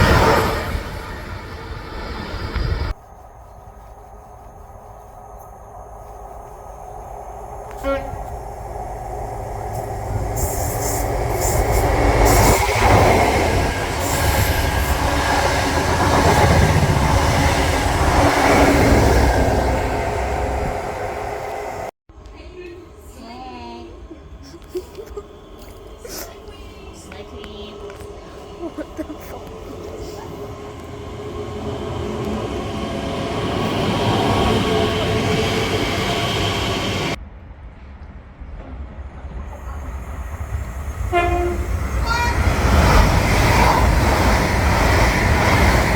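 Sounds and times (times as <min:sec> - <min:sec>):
train passing with wheel-on-rail noise: 0:00.0 - 0:45.9.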